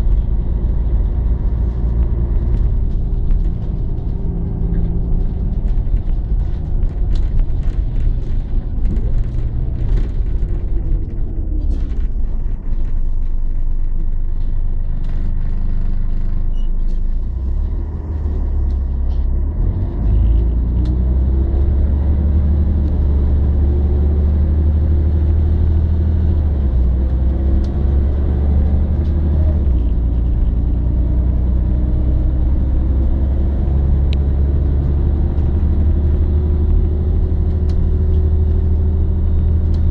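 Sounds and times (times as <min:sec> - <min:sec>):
rattles and clicks: 0:00.0 - 0:17.4
bus diesel engine rumbling: 0:00.0 - 0:39.9.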